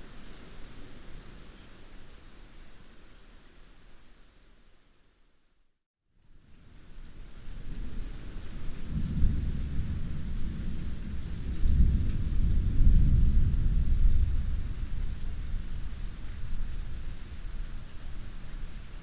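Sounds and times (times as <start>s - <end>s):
heavy rain falling: 6.5s - 19.0s
low roll of thunder: 7.4s - 19.0s.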